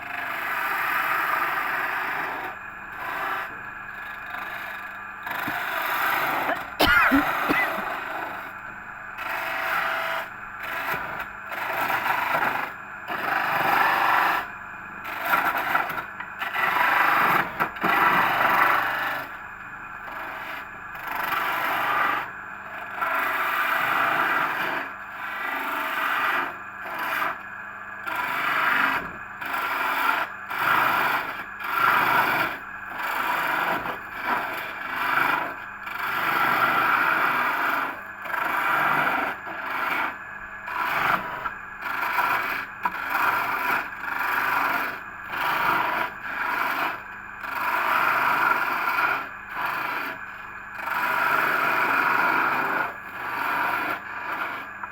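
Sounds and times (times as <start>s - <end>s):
cutting tool scraping on lathe: 0.0s - 8.5s, 20.0s - 27.4s, 28.0s - 54.8s
faint machine hum: 0.0s - 54.9s.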